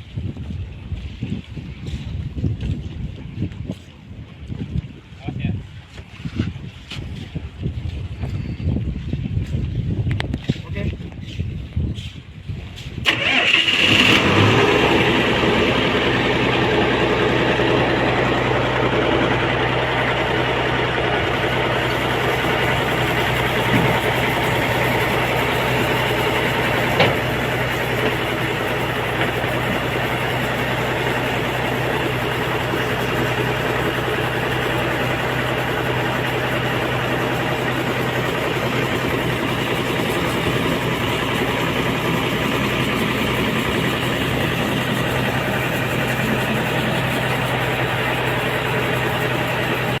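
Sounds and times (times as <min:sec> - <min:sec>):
diesel engine idling: 0:13.0 - 0:50.0.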